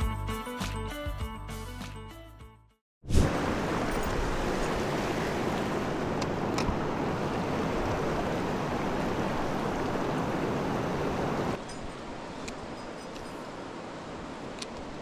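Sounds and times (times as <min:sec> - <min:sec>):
stream water rushing: 0:03.1 - 0:15.0.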